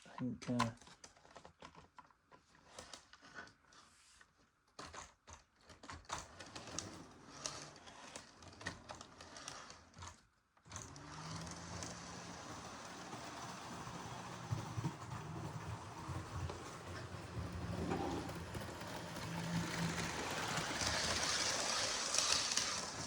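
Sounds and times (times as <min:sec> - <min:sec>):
model train running: 0:10.9 - 0:23.0.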